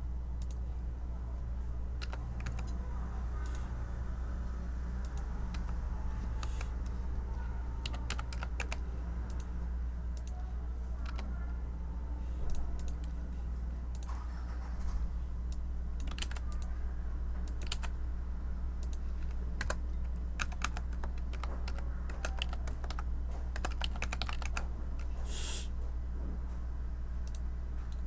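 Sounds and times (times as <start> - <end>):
steady low hum: 0.0 - 28.0
computer keyboard typing: 1.9 - 3.8, 4.9 - 11.6, 12.5 - 13.2, 15.5 - 16.7, 17.4 - 18.0, 18.8 - 25.2.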